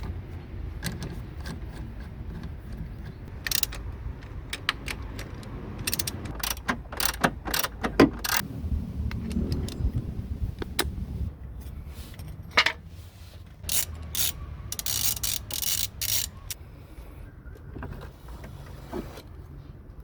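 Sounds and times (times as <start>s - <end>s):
ratchet wrench clicking: 3.3s - 8.4s, 13.6s - 16.6s.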